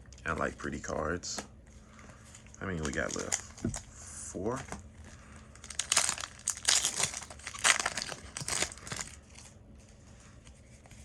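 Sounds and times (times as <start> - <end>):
foil wrapper crinkling and tearing: 2.4 - 3.9, 5.1 - 9.6.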